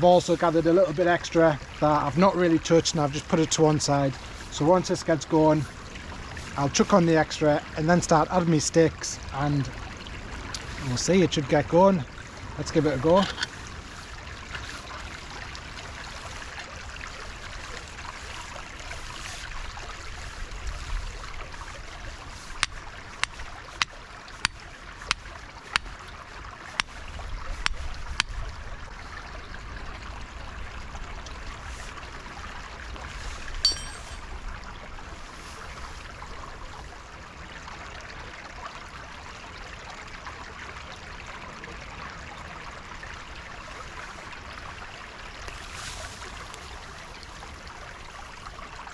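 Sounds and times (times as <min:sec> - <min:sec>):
stream running: 0:00.0 - 0:48.9
click with ringing tone: 0:33.7 - 0:34.2.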